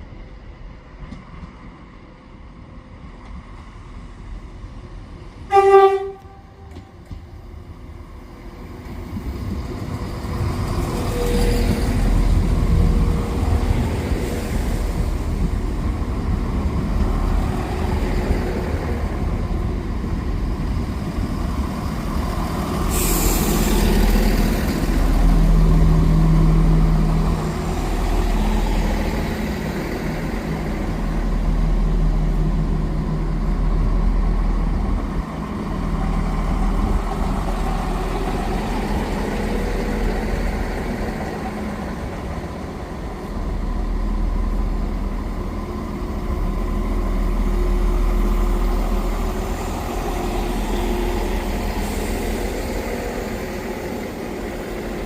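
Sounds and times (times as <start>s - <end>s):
diesel train engine running: 5.5s - 55.0s
sharp hiss of released air: 22.8s - 24.3s.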